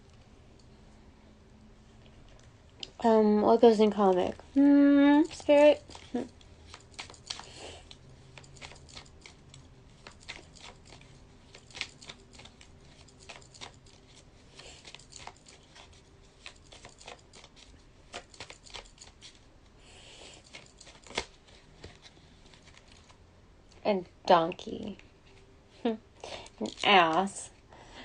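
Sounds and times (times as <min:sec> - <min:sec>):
soft rustles: 0:20.3 - 0:23.2.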